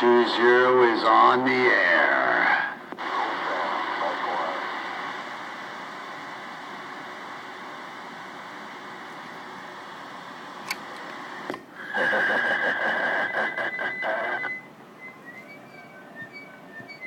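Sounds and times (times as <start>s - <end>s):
loud steady radio tone: 0.0s - 8.9s, 11.3s - 15.4s
radio static hiss: 0.0s - 14.8s.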